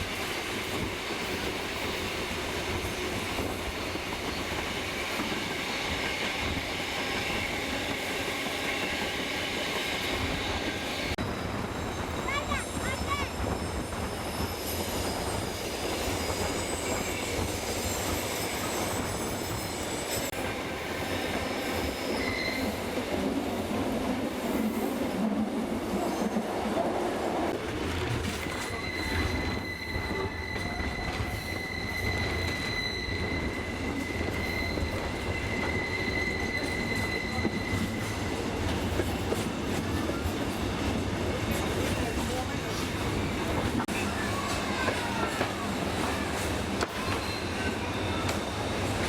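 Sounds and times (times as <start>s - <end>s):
train wheels rumbling on rails: 0.0s - 49.0s
high-pitched wheel squeal: 13.4s - 20.3s, 21.7s - 22.9s, 28.4s - 38.4s.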